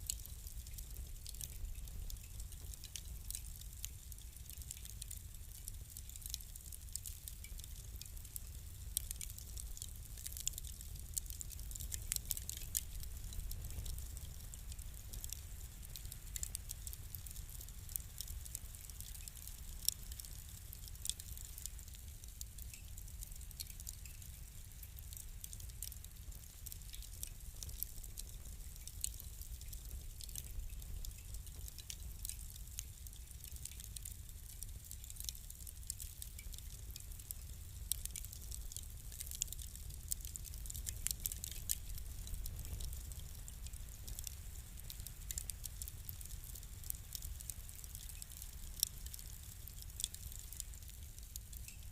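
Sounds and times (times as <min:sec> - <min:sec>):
fire crackling and popping: 0:00.0 - 0:51.9.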